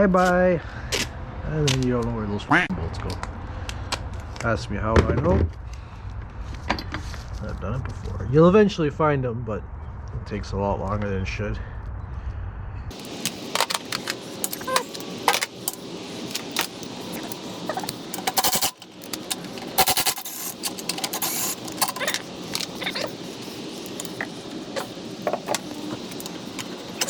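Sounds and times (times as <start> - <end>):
metal parts clinking: 12.9 - 27.0.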